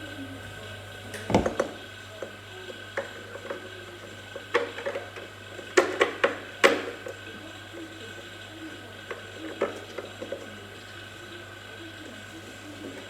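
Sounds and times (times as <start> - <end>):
steady low hum: 0.0 - 4.5.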